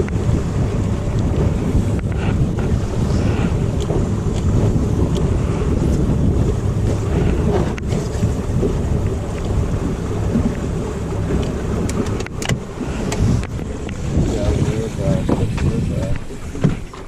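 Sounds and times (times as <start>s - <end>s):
boat engine rumble: 0.0s - 17.0s
wind buffeting microphone: 0.0s - 17.0s.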